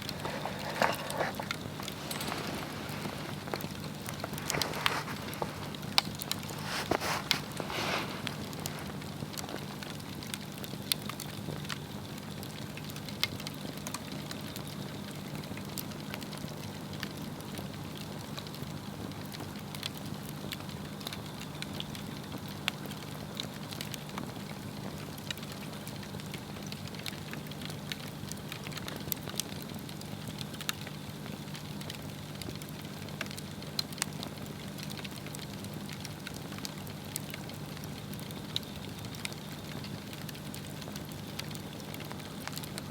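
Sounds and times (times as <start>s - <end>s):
flame hissing: 0.0s - 10.7s
log fire crackling and popping: 0.0s - 42.9s.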